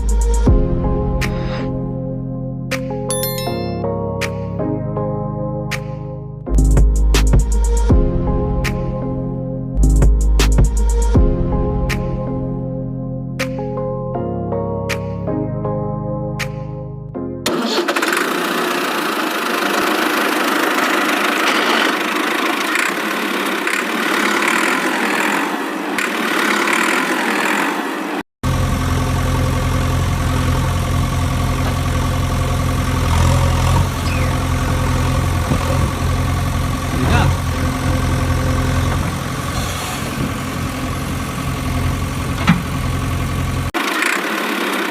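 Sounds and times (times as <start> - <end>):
deep motor hum: 0.0 - 2.6, 6.5 - 13.3, 28.4 - 43.8
music: 0.0 - 17.5
motor running with hissy sound: 39.4 - 41.1.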